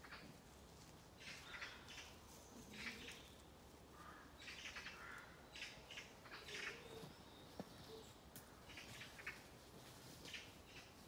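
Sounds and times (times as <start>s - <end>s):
birds scolding calls: 1.2s - 9.5s.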